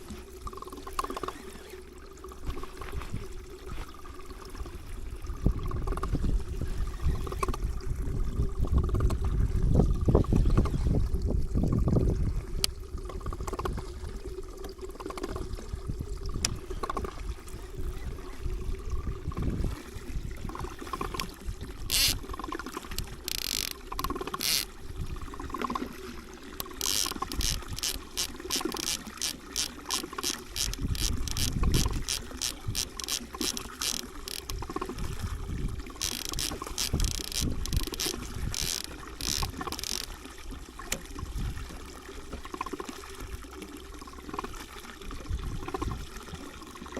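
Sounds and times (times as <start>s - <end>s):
water lapping against boat hull: 0.0s - 46.9s
wind rumble on the microphone: 2.5s - 14.6s, 15.3s - 23.5s, 24.8s - 25.7s, 30.6s - 32.8s, 34.4s - 39.8s, 41.1s - 41.9s, 45.0s - 46.5s.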